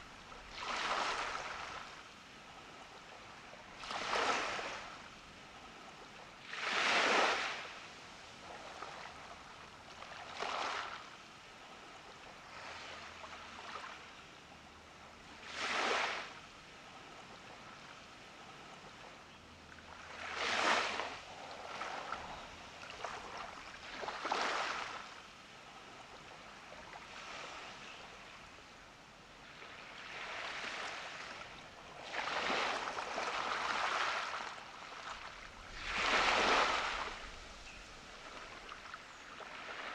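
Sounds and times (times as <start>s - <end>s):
ocean waves breaking on beach: 0.0s - 14.0s, 15.3s - 19.1s, 19.9s - 28.5s, 29.4s - 39.9s.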